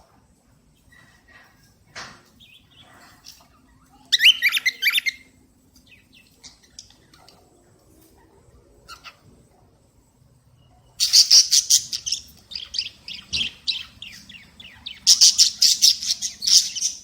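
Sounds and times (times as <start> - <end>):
cockatiel chirping: 11.0 - 17.0.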